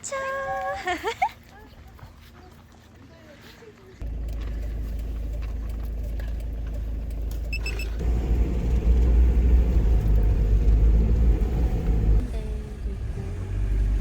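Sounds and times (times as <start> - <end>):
car engine and road rumble: 4.0 - 14.0
short high beep: 7.5 - 8.0.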